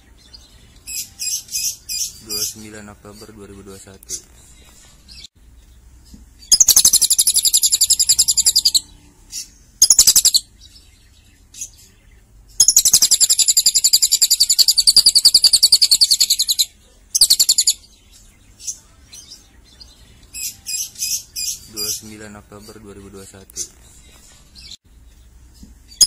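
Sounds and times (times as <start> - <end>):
bird singing fast high trills: 6.4 - 10.5.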